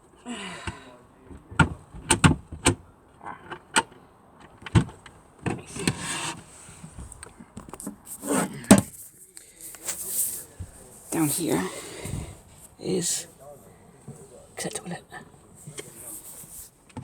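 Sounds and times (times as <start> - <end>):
sharp clicks and knocks: 0.7 - 2.8.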